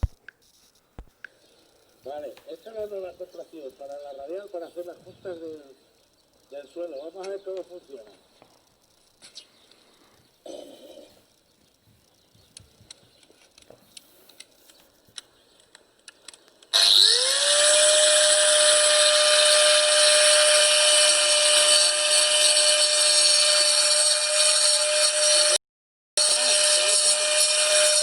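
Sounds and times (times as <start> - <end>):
angle grinder grinding grout: 16.7 - 25.6, 26.2 - 28.0.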